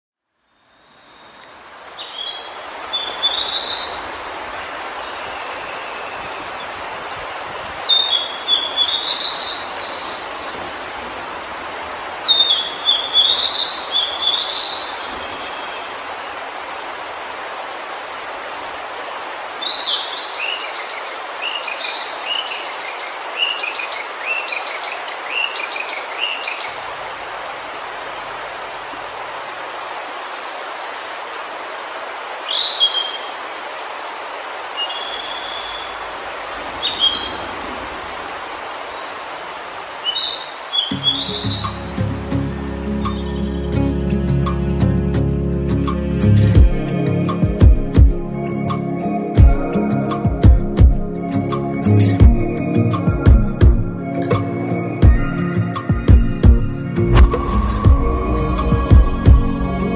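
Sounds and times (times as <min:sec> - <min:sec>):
songbirds warbling: 0:00.5 - 0:44.0.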